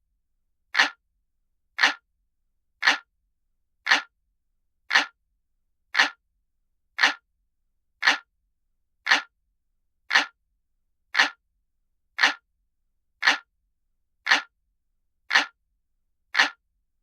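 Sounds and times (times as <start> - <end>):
clock ticking: 0.8 - 1.0, 1.8 - 2.0, 2.8 - 3.1, 3.9 - 4.1, 4.9 - 5.2, 6.0 - 6.2, 7.0 - 7.2, 8.0 - 8.3, 9.1 - 9.3, 10.1 - 10.4, 11.2 - 11.4, 12.2 - 12.4, 13.2 - 13.5, 14.3 - 14.5, 15.3 - 15.6, 16.4 - 16.6.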